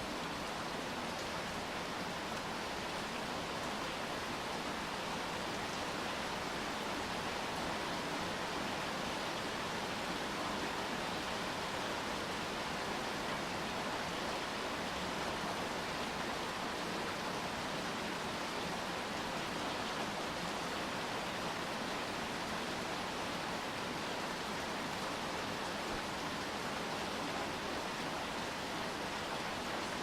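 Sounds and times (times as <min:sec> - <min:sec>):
rain falling: 0:00.0 - 0:30.0.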